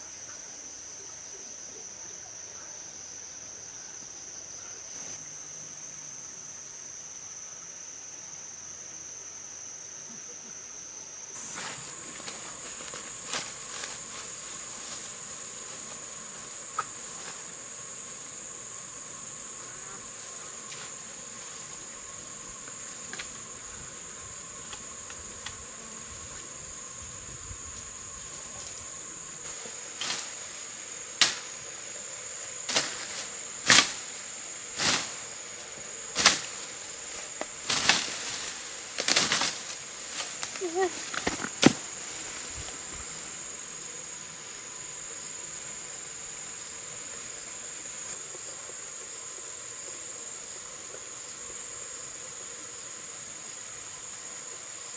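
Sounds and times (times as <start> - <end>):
insects droning: 0.0 - 54.9.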